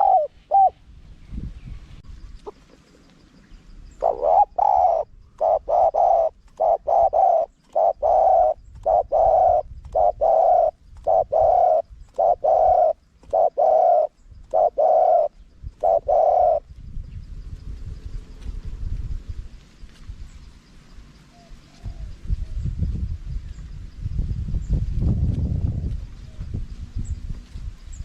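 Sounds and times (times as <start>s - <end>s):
dove cooing: 0.0s - 0.8s, 3.8s - 16.7s.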